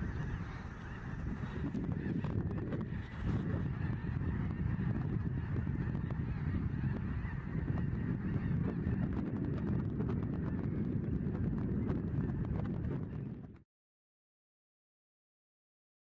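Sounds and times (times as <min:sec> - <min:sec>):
geese honking: 0:00.0 - 0:09.4.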